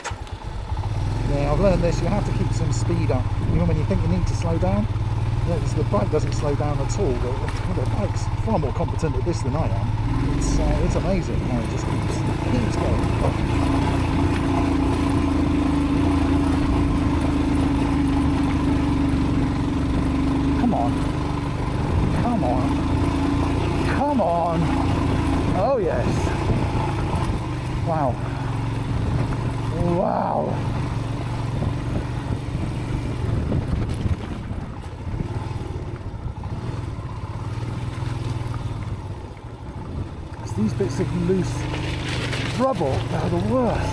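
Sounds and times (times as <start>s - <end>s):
motorcycle engine under load: 0.0s - 43.9s
wind noise on microphone: 31.6s - 35.4s.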